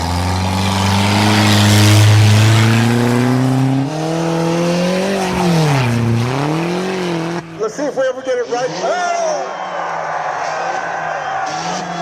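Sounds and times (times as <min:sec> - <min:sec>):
car engine accelerating hard: 0:00.0 - 0:09.1, 0:10.0 - 0:12.0
rushing road noise: 0:00.0 - 0:12.0.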